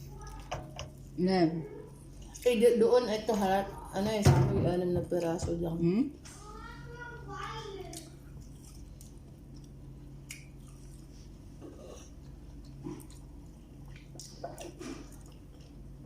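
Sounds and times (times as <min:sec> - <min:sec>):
steady low hum: 0:00.0 - 0:16.0
wet mouth smacks and clicks: 0:10.3 - 0:10.5
chewing and biting: 0:11.7 - 0:15.9.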